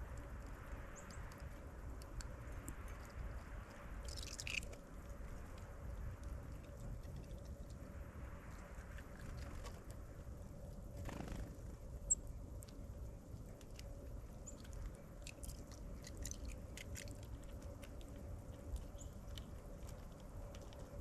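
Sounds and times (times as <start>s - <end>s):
birds pecking and cracking seed: 0.0s - 21.0s
faint hum: 0.0s - 21.0s
low steady rumble: 0.0s - 21.0s.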